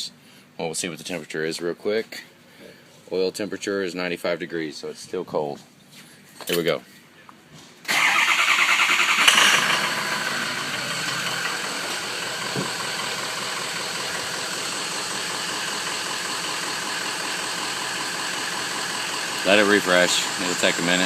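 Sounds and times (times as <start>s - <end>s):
diesel engine cranking and idling: 7.9s - 21.0s.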